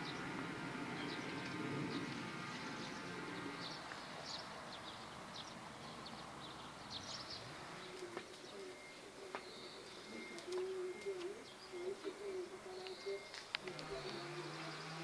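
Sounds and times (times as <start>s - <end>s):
dove cooing: 0.0s - 3.9s, 7.4s - 15.0s
small birds chirping: 0.0s - 15.0s.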